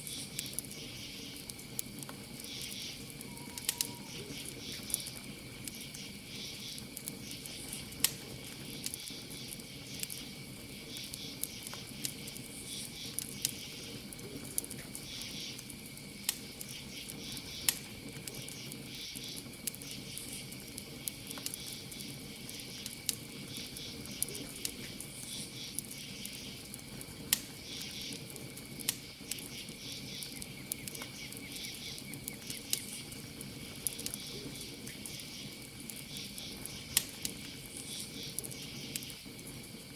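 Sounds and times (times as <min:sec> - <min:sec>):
campfire crackling and popping: 0:00.0 - 0:39.9
crickets chirping: 0:00.0 - 0:39.9.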